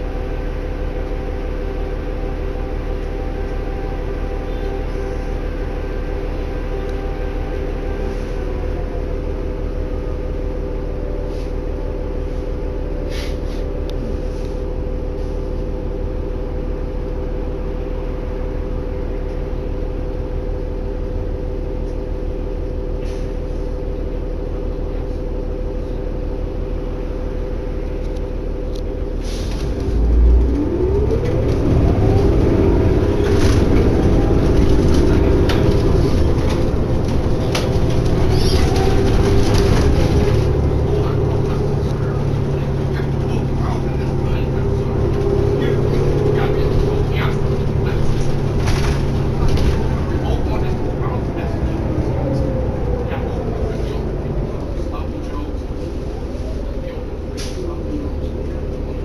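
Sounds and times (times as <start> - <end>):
bus engine droning: 0.0 - 59.0.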